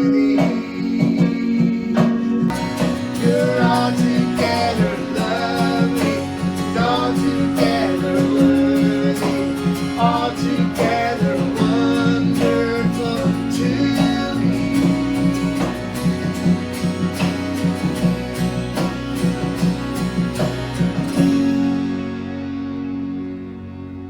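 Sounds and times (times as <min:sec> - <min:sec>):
person singing: 0:00.0 - 0:16.6
acoustic guitar strumming: 0:00.0 - 0:24.0.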